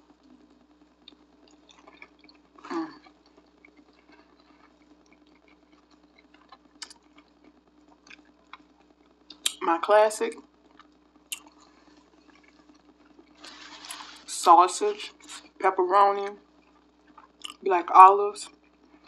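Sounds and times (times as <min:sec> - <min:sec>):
faint steady hum: 0:00.0 - 0:19.0
chewing with wet mouth clicks: 0:01.0 - 0:08.7, 0:10.7 - 0:13.5.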